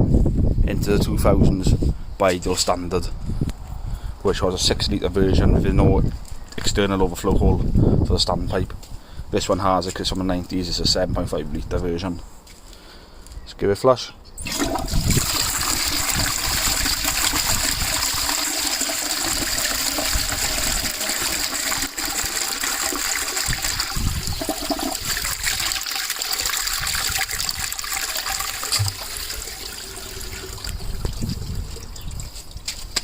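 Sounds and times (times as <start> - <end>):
toilet flushing: 14.4 - 31.3.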